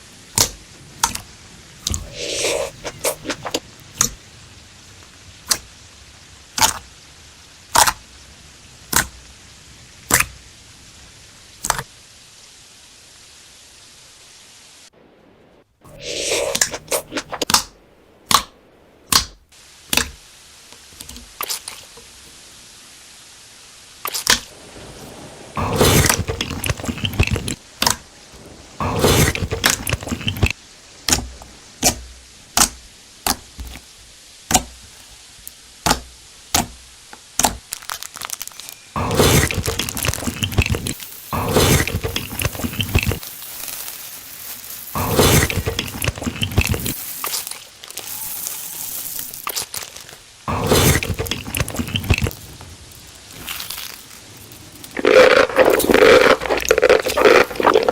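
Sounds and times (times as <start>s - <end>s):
chewing crunchy food: 25.6s - 27.6s, 28.8s - 30.6s, 37.7s - 57.9s.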